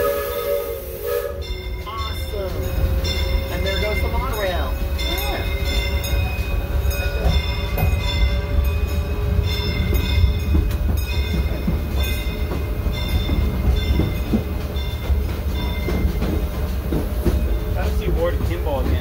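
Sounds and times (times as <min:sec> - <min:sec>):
railroad car rumbling on track: 0:00.0 - 0:19.0
high ringing tones: 0:01.4 - 0:16.2.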